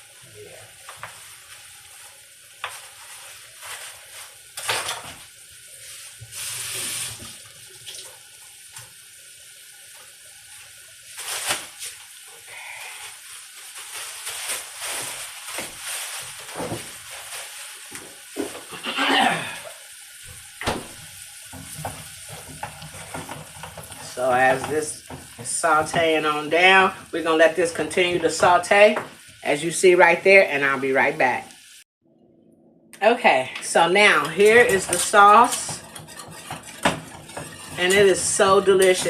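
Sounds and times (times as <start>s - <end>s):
onions sizzling in a pan: 0.0s - 31.9s, 33.7s - 39.0s
utensils and dishes clattering: 3.6s - 5.2s, 21.5s - 26.8s, 34.0s - 39.0s.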